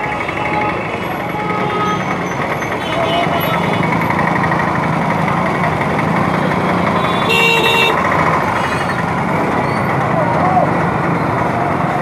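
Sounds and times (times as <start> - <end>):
vehicle horn: 0.0 - 2.2, 7.0 - 8.0
motorcycle and scooter traffic: 0.0 - 12.0.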